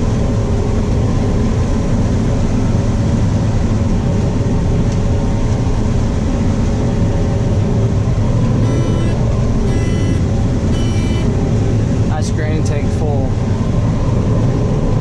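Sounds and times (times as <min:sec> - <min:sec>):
combine harvester running: 0:00.0 - 0:15.0
short beeps: 0:08.6 - 0:11.3.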